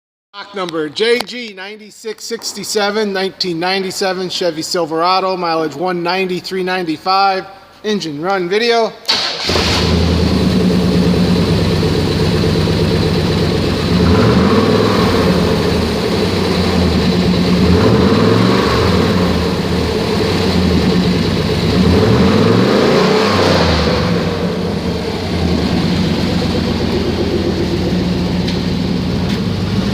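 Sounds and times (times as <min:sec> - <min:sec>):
truck engine idling and revving: 0:09.2 - 0:29.9.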